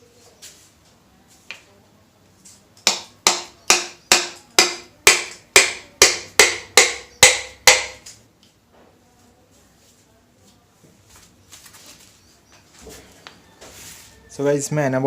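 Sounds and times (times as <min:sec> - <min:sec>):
hammer blows on metal: 0:02.9 - 0:08.0.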